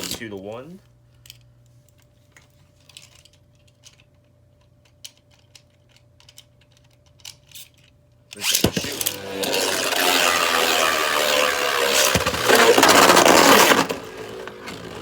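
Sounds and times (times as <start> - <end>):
spinning tops hitting stadium: 8.4 - 15.0
spinning tops whirring scrape: 8.4 - 15.0.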